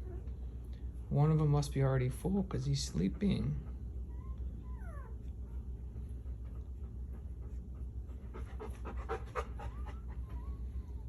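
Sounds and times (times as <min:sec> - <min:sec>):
steady low hum: 0:00.0 - 0:11.0
dog panting: 0:02.2 - 0:11.0.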